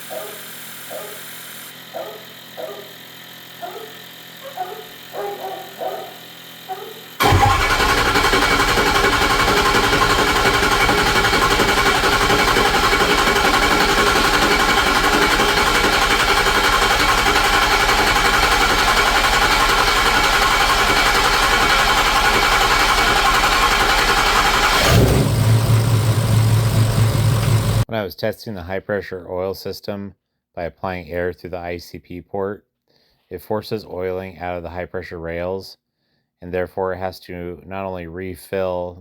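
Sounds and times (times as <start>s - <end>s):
starter motor cranking: 0.0s - 27.9s
diesel engine running: 7.2s - 27.9s.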